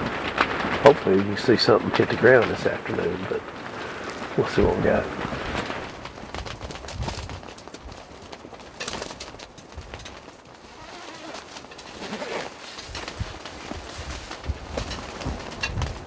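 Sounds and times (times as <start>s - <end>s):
strong wind buffeting microphone: 0.0s - 8.0s, 12.9s - 16.0s.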